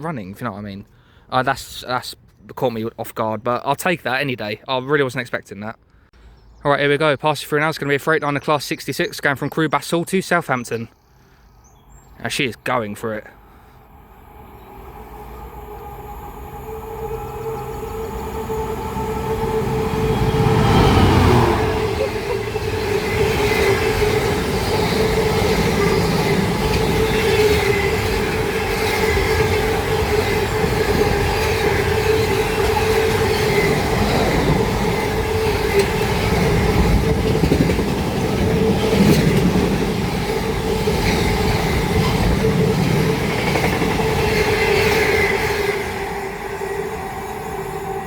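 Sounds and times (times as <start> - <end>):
diesel locomotive passing: 13.2 - 48.0
steady whine: 13.6 - 36.0
freight wagons rumbling and clattering: 21.0 - 45.0.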